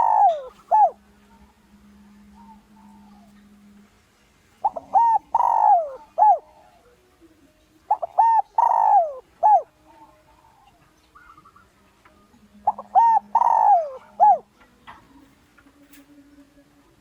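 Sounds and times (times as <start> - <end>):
dove cooing: 0.0 - 3.8, 4.6 - 11.8, 12.4 - 16.0.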